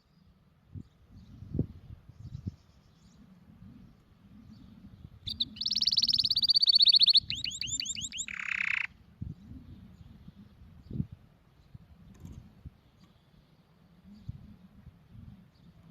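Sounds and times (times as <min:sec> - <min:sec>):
canary singing: 0:05.2 - 0:09.0.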